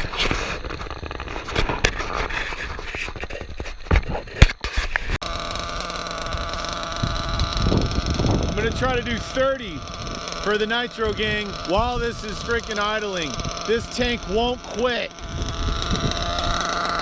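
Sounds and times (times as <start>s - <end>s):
small nitro engine idling: 0.0s - 17.0s.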